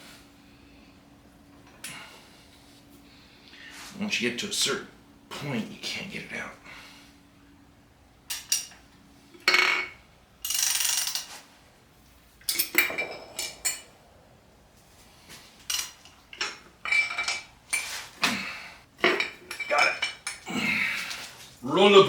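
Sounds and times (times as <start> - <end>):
metal tools clinking and scraping: 8.3 - 8.8, 12.4 - 14.0, 15.3 - 21.4.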